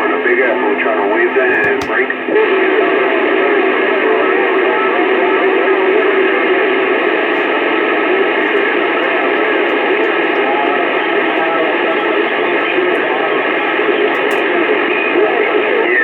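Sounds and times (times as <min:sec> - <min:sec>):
faint garbled radio transmissions: 0:01.1 - 0:02.3, 0:04.6 - 0:16.0.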